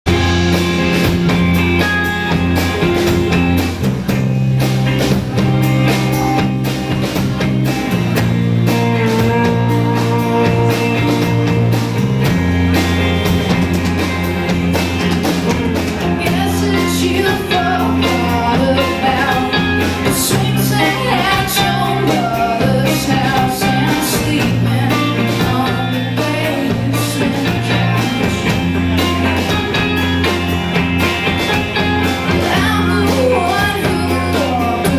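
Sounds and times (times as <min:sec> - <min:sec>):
rock band playing: 0:00.0 - 0:34.9
woman singing: 0:15.6 - 0:29.5, 0:32.3 - 0:34.9.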